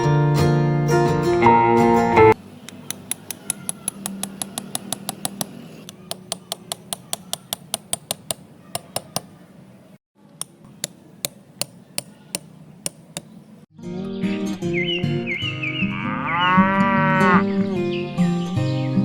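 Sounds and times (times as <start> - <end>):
small hammer tapping: 2.7 - 9.4, 10.4 - 13.4.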